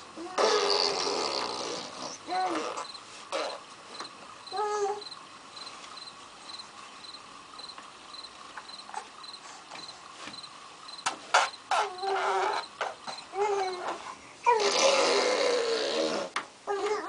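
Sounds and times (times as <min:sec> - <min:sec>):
cricket chirping: 0:02.8 - 0:03.0, 0:04.0 - 0:13.2.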